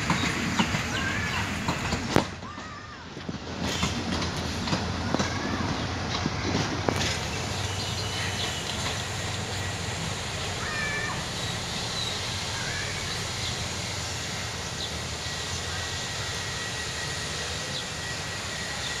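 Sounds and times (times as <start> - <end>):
wheels clacking over rail joints: 0.0 - 12.8
train rumbling: 0.0 - 19.0
birds chirping: 7.0 - 13.9.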